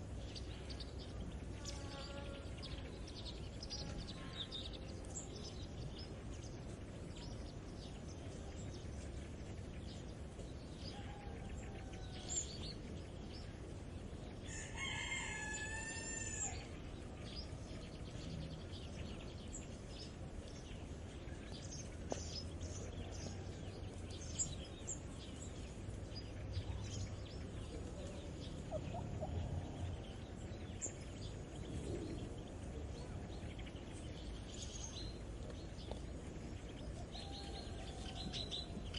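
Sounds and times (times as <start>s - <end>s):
small birds chirping: 0.0s - 38.9s
rooster crowing: 14.5s - 16.7s, 37.2s - 38.6s.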